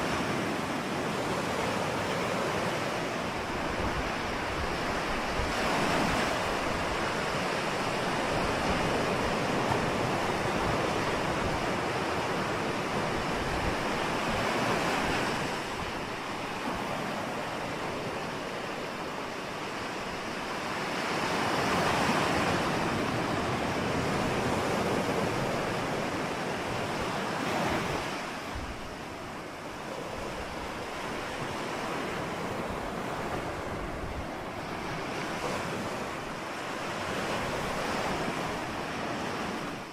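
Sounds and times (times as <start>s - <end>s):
ocean waves breaking: 0.0s - 39.9s
wind: 0.0s - 39.9s.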